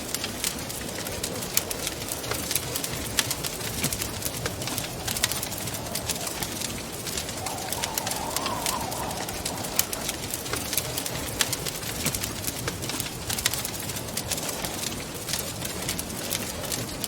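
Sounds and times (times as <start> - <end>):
wood fire crackling: 0.1 - 17.0
whistling wind gust: 2.9 - 13.4
wind rushing: 4.9 - 12.0.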